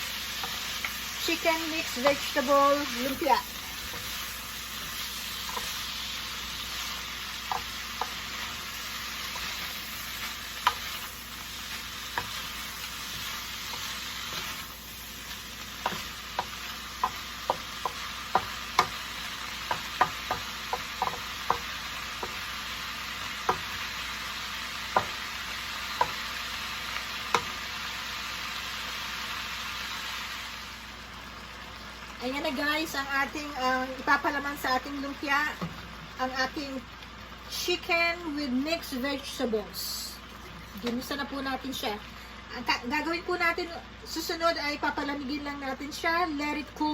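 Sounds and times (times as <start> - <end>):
food sizzling in a frying pan: 0.0 - 46.9
utensil clacking against pan: 15.8 - 22.4, 24.9 - 25.2.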